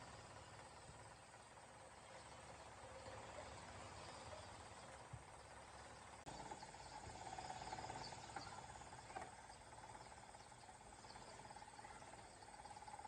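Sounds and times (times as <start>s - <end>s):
faint insect trill: 0.0s - 13.0s
high insect chirps: 3.1s - 13.0s.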